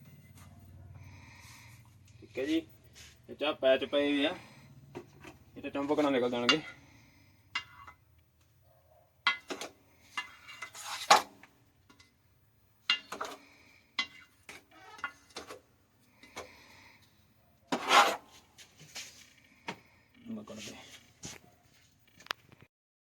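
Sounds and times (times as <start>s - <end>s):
metal parts and tools clinking: 9.3s - 9.6s, 14.0s - 15.6s.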